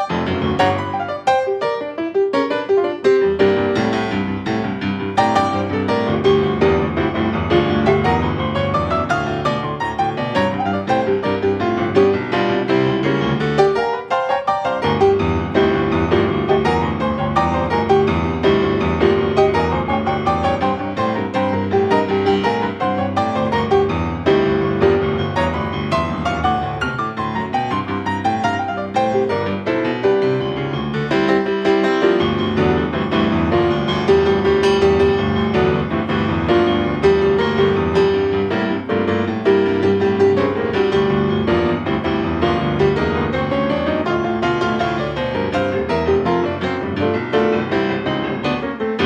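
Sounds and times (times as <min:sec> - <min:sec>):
piano music: 0:00.0 - 0:49.0.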